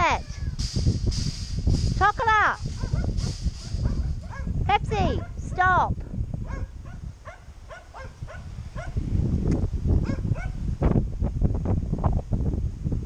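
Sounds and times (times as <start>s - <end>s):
wind buffeting microphone: 0.0s - 13.0s
dogs yapping: 2.6s - 5.7s, 6.4s - 9.0s, 10.0s - 10.6s.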